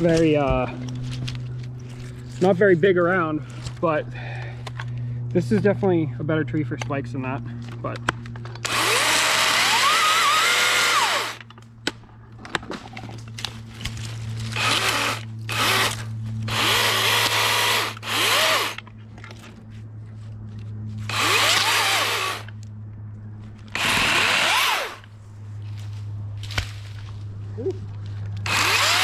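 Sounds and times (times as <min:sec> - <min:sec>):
steady low hum: 0:00.0 - 0:29.0
electric chainsaw whining: 0:08.5 - 0:11.5, 0:14.4 - 0:18.9, 0:21.0 - 0:22.5, 0:23.7 - 0:25.1, 0:28.4 - 0:29.0.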